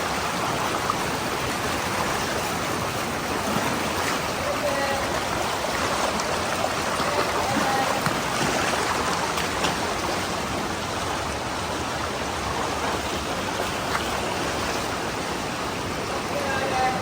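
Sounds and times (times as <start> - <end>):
stream rushing over boulders: 0.0 - 17.0.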